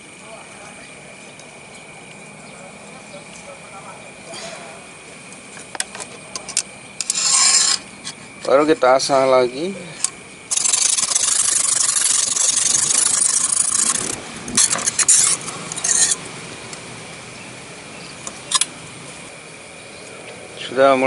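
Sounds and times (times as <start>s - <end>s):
sharpening stone scraping knife: 7.0s - 8.2s, 10.5s - 16.2s.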